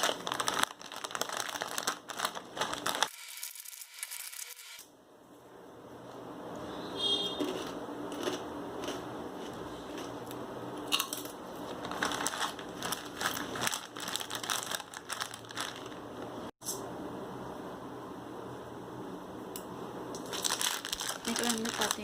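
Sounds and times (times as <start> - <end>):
plastic packaging crinkling: 0.0 - 3.7, 11.6 - 16.5, 20.2 - 22.0.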